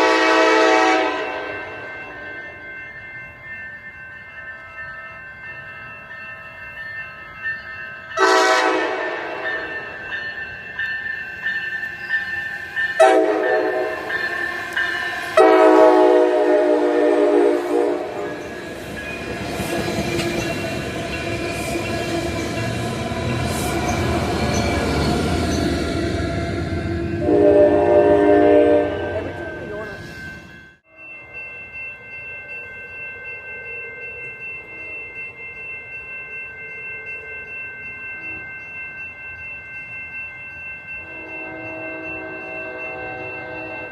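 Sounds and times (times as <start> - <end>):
train air horn blasts: 0.0 - 1.5, 8.2 - 9.4, 13.0 - 14.0, 15.4 - 18.2, 27.2 - 29.3, 41.1 - 43.8
train rumbling past: 8.2 - 30.8.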